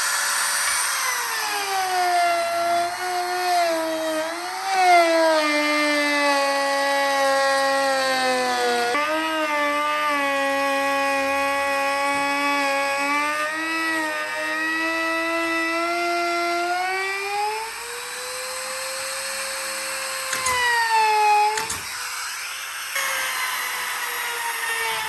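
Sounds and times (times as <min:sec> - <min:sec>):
power tool motor whining: 0:00.0 - 0:25.0.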